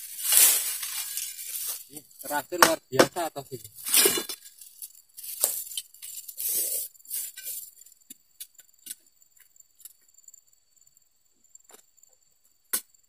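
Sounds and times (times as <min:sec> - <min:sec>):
palm fronds rustling and tearing: 0:00.0 - 0:02.4, 0:03.6 - 0:07.7.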